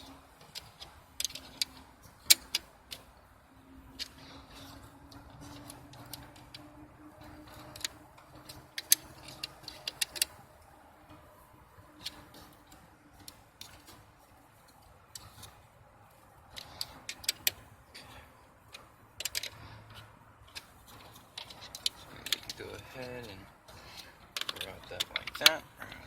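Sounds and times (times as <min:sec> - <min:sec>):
metallic clicks and taps: 0:03.9 - 0:10.4, 0:18.7 - 0:22.6, 0:23.2 - 0:26.0.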